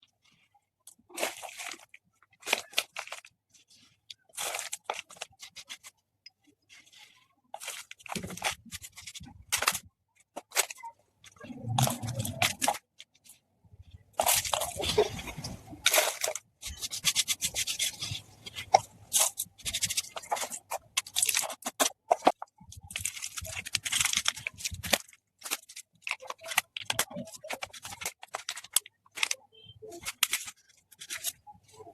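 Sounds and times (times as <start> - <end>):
slate pencils crunching and grinding: 0.1 - 5.9, 6.5 - 13.4, 14.1 - 31.9.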